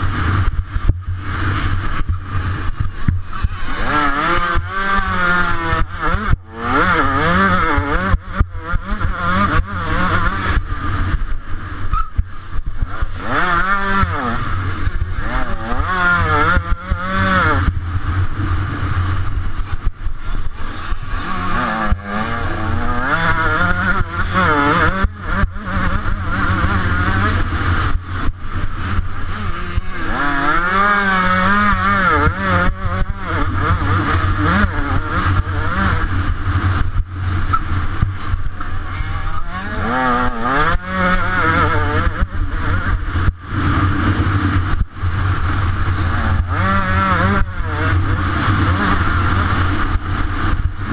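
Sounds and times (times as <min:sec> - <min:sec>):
two-stroke motorcycle engine revving: 0:00.0 - 0:50.9.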